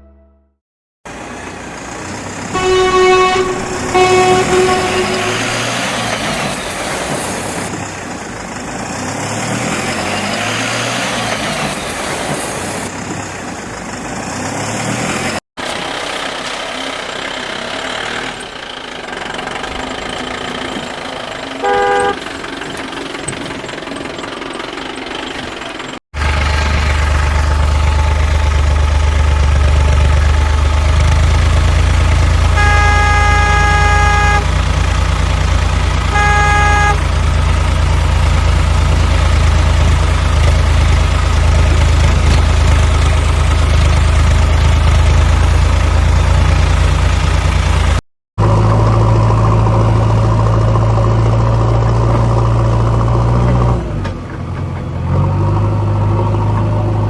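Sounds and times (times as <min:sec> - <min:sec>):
vehicle horn honking: 0:00.0 - 0:00.6, 0:02.6 - 0:06.5, 0:19.1 - 0:22.4, 0:32.3 - 0:34.8, 0:36.0 - 0:37.4
tractor diesel engine droning: 0:01.1 - 0:14.2, 0:15.6 - 0:57.0.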